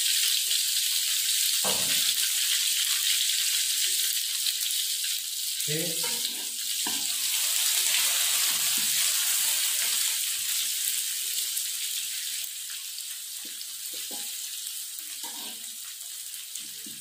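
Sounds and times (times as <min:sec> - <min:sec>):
paste sizzling in hot oil: 0:00.0 - 0:17.0
metal ladle stirring in wok: 0:06.0 - 0:07.1, 0:15.2 - 0:15.7.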